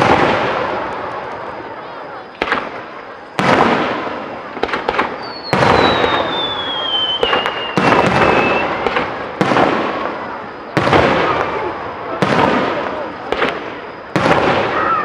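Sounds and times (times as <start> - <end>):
fireworks booming: 0.0 - 15.0
crackling pops: 2.3 - 11.6, 12.2 - 14.9
descending whistle: 5.2 - 8.8.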